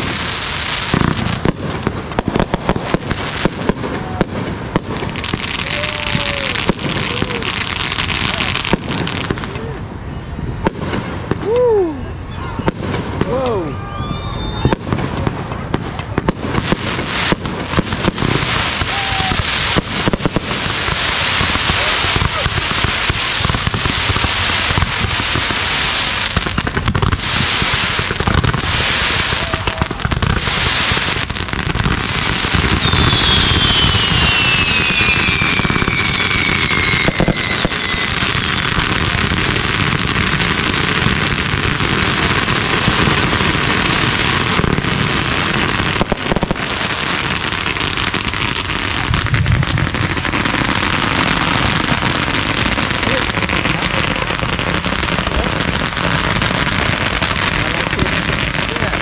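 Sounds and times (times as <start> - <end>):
fireworks crackling and banging: 0.0 - 59.0
firework whistle gliding down: 13.5 - 14.9, 32.0 - 39.0.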